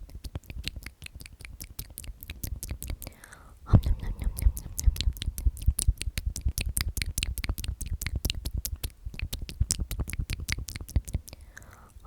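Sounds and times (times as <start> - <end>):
wet mouth clicks: 0.0 - 12.0
soft low thumps: 3.7 - 11.0.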